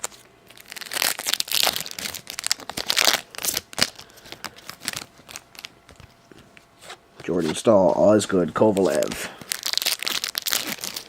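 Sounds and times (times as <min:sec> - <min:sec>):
wrapper tearing and crinkling: 0:00.0 - 0:06.1, 0:08.6 - 0:11.0.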